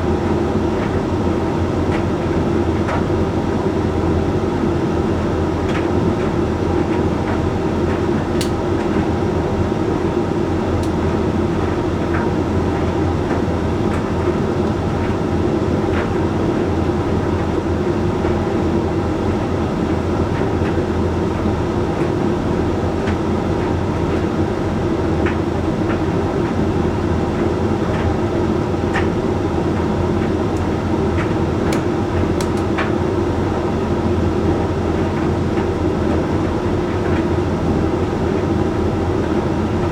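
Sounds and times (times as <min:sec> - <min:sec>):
tumble dryer running: 0:27.0 - 0:39.9.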